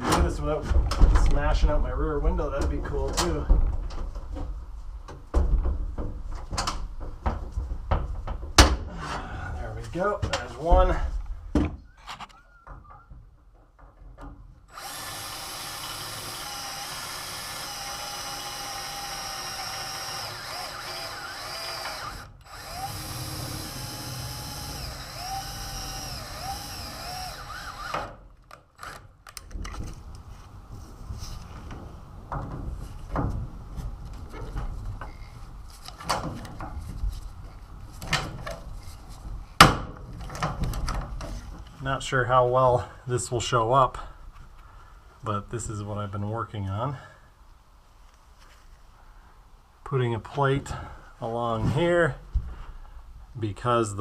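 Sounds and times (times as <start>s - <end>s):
power drill boring: 14.7s - 28.2s, 28.8s - 29.0s.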